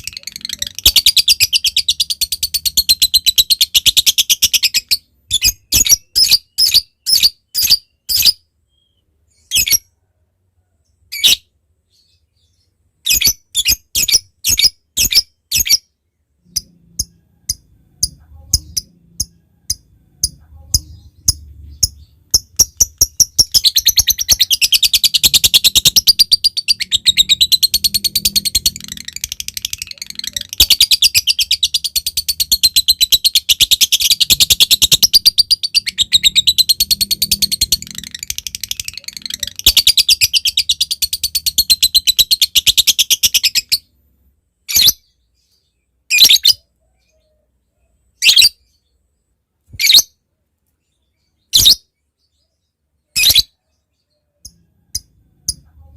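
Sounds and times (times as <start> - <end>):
bird high chattering trill: 0.0 - 8.3, 16.5 - 43.9.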